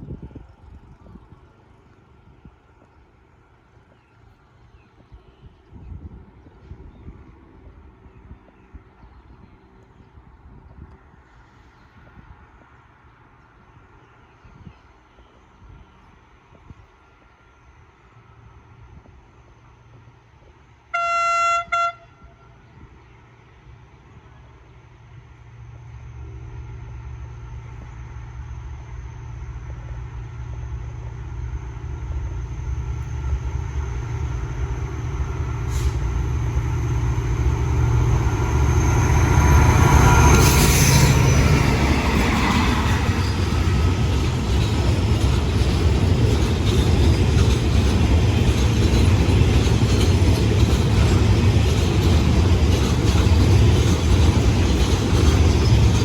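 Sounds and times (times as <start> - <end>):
locomotive engine rumble: 21.7 - 56.0
freight wagons rolling by: 40.3 - 56.0.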